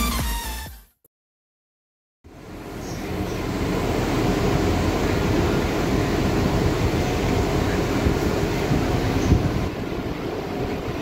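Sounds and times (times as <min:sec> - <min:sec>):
train machinery humming: 0:02.3 - 0:11.0.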